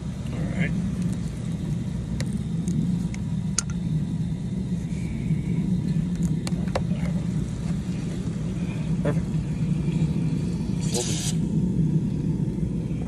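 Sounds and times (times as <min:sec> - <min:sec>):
pump motor humming: 0:05.7 - 0:13.0.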